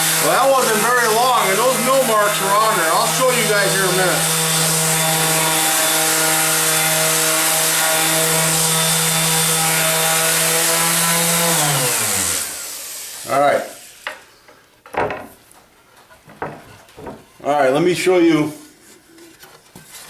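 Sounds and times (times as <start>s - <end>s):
sander spinning down: 0.0s - 13.9s
palm sander whining: 0.0s - 14.2s.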